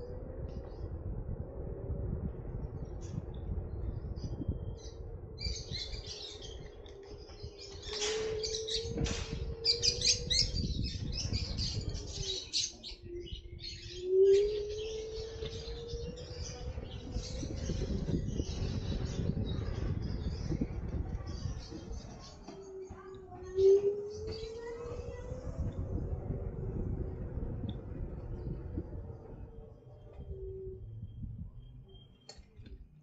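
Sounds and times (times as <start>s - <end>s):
low rumble: 0.0s - 33.0s
birds chirping: 3.7s - 32.8s.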